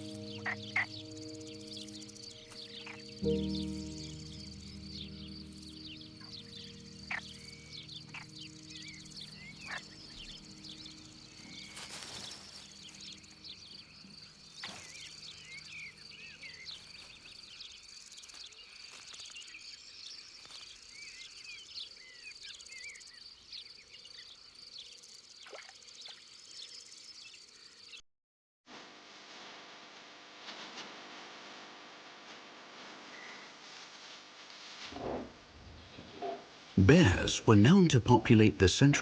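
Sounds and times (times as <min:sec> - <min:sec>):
bird chirping calls: 0:00.0 - 0:17.9
insect trill: 0:00.0 - 0:28.0.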